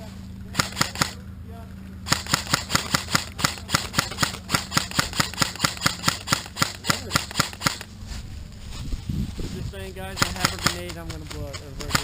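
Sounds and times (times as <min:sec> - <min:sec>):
airsoft gun rapid shots: 0:00.5 - 0:01.2, 0:02.1 - 0:07.9, 0:10.1 - 0:12.0.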